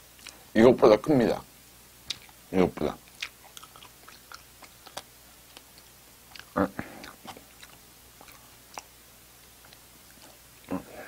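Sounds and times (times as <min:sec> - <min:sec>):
chewing with wet clicks: 0:00.1 - 0:00.4, 0:02.0 - 0:10.7
biting into pastry: 0:03.0 - 0:08.9.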